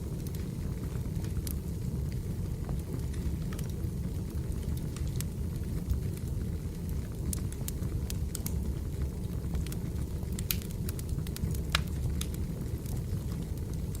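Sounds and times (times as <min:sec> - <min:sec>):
low rumble of flames: 0:00.0 - 0:14.0
wood fire crackling and popping: 0:00.0 - 0:14.0.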